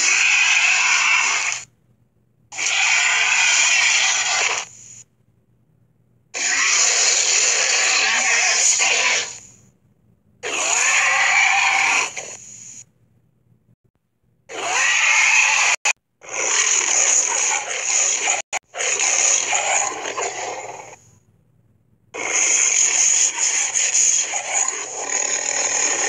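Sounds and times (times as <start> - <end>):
cartoon dinosaur growls: 0.0 - 1.7, 2.6 - 4.7, 6.4 - 9.5, 10.4 - 12.4, 14.5 - 21.0, 22.2 - 26.0.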